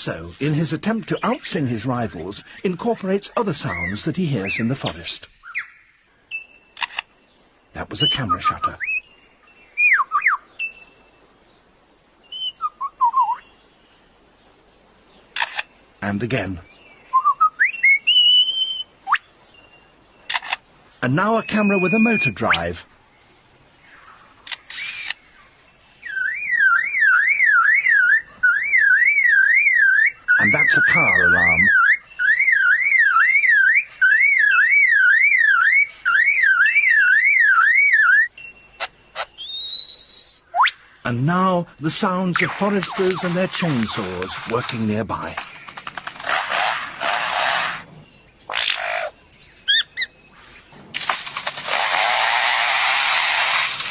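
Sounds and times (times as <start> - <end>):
lyrebird singing: 0.0 - 53.9
bird mimicking car alarm: 26.1 - 40.8.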